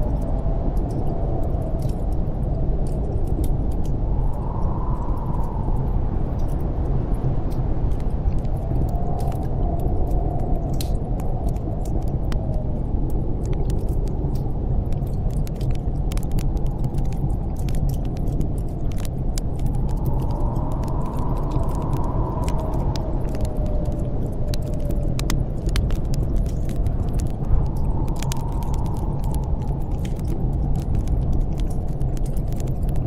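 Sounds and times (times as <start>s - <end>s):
deep low rumble: 0.0s - 33.0s
snowstorm wind blowing: 0.0s - 33.0s
whistling wind gusts: 0.0s - 33.0s
wood fire crackling and popping: 7.5s - 33.0s.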